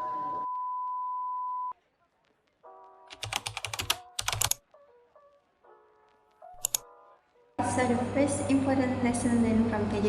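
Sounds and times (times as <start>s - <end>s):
background music: 1.8s - 10.0s
rapid keyboard typing clicks: 3.1s - 4.6s, 6.5s - 6.8s.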